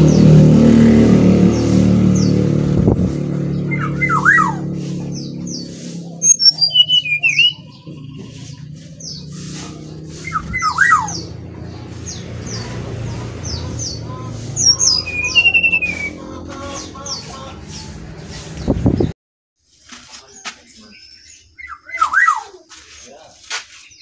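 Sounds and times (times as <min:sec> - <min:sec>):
bird chirping and whistling: 0:03.5 - 0:11.4, 0:12.0 - 0:19.1, 0:21.6 - 0:22.5.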